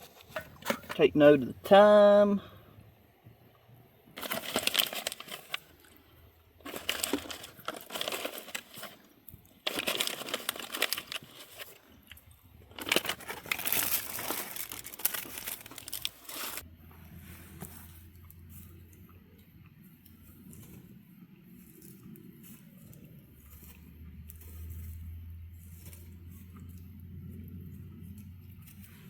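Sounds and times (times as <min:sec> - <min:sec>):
plastic packaging crinkling: 0:04.2 - 0:06.0, 0:06.6 - 0:16.6.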